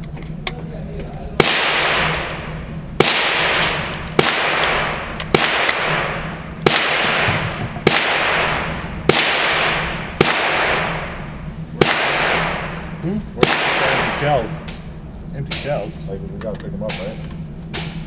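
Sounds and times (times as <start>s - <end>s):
handgun shots with echo: 1.4s - 14.8s.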